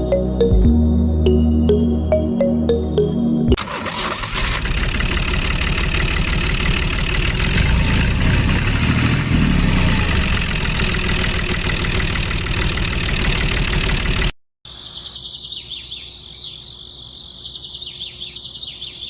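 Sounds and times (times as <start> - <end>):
small motor running under load: 4.4 - 14.3.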